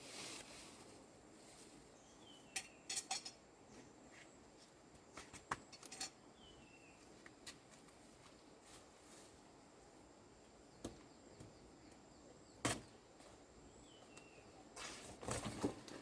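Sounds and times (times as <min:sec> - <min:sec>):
light clicks and clinks: 0:02.5 - 0:03.4, 0:05.6 - 0:06.2.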